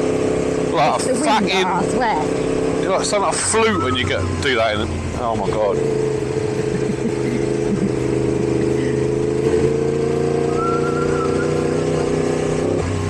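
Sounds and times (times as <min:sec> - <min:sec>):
motorcycle engine running: 0:00.0 - 0:13.0
wind and road noise: 0:00.0 - 0:13.0
faint thin whistle-like tone: 0:10.6 - 0:11.7.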